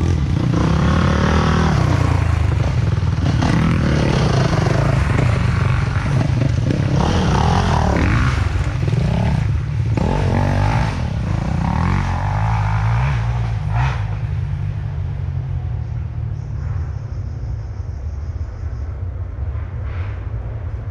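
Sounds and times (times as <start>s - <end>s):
dirt bike engines revving: 0.0s - 16.1s.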